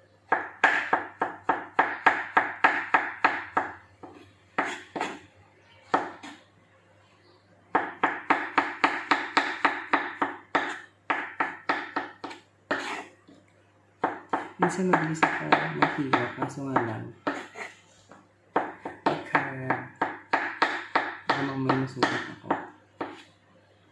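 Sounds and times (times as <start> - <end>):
knife slicing on cutting board: 12.7 - 13.1.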